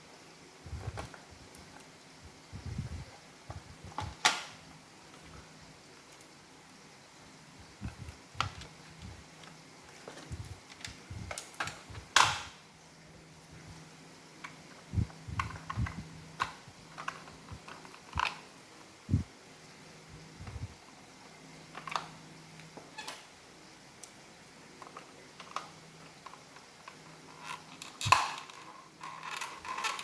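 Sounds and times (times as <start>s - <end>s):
faint steady hum: 0.0s - 30.0s
plastic parts clicking and knocking: 7.8s - 12.6s, 15.3s - 18.5s, 24.8s - 30.0s.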